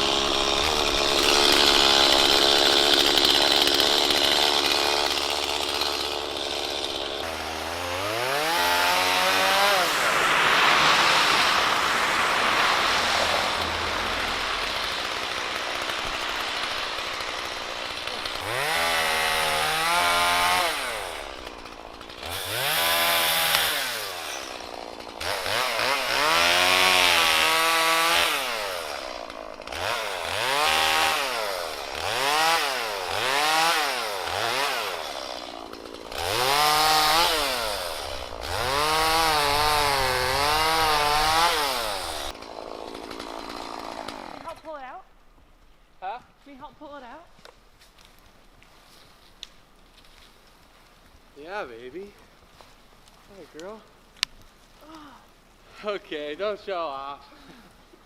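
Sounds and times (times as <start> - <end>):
chainsaw revving while cutting: 0.0 - 44.7.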